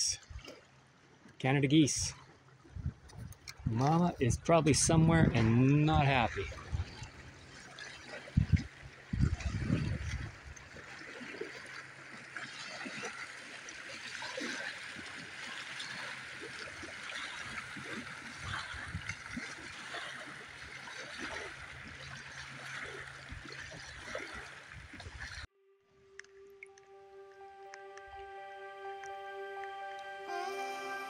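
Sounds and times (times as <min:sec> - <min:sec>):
light water splashes: 0:00.0 - 0:25.5
small waves lapping: 0:00.0 - 0:25.5.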